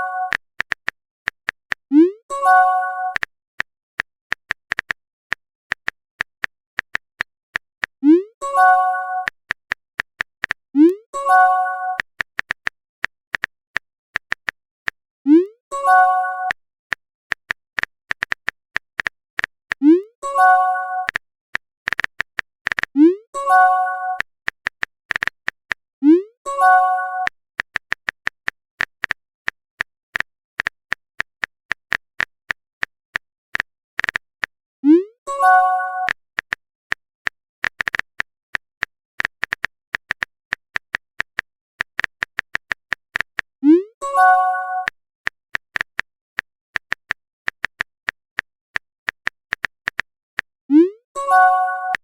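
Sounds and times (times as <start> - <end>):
keyboard tapping clicks: 0.1 - 2.2, 3.1 - 15.6, 16.5 - 25.8, 35.5 - 43.5, 44.8 - 50.5
chiming notification tone: 34.9 - 36.1, 43.6 - 44.9, 50.7 - 52.0.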